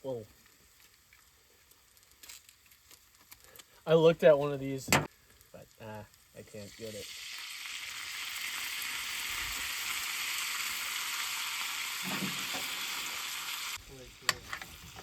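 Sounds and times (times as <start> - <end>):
food sizzling in a pan: 5.5 - 15.0.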